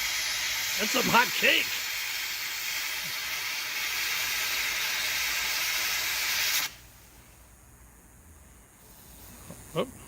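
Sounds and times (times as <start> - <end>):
firework fountain hissing: 0.0 - 7.6.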